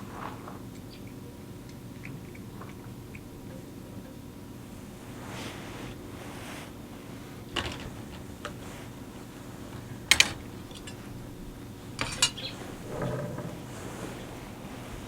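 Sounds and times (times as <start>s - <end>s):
cat eating wet food: 0.0s - 5.0s.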